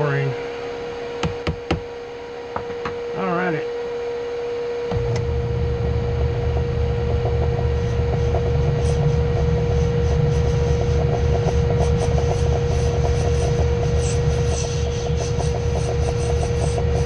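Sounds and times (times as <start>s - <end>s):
machine tool motor humming: 4.0s - 17.0s.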